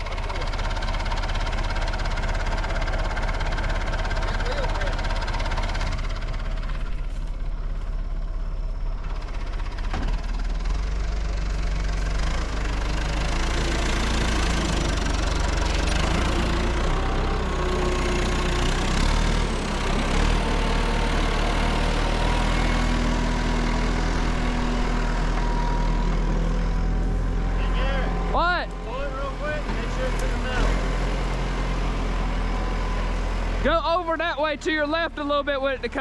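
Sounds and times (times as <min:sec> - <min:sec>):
backhoe engine running: 0:00.0 - 0:36.0.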